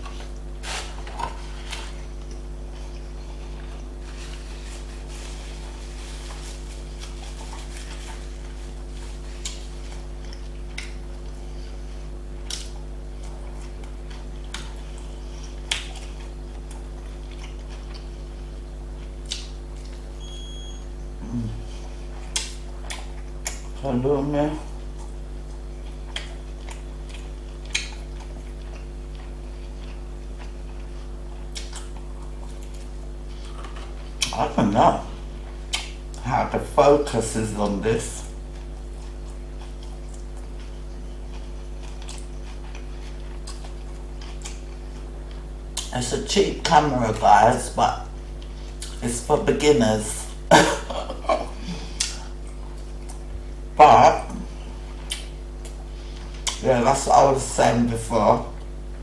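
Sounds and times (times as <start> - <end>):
person chewing food: 0.0 - 23.8, 24.6 - 34.4, 35.2 - 36.2, 38.2 - 45.9, 48.1 - 49.0, 50.3 - 53.7, 54.3 - 56.6
low electrical hum: 0.0 - 59.0
wet mouth clicks: 27.7 - 28.1, 55.1 - 55.8.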